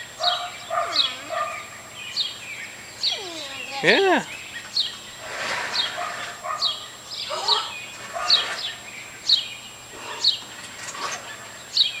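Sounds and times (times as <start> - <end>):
baby bird chirping: 0.0 - 5.0, 6.6 - 9.4.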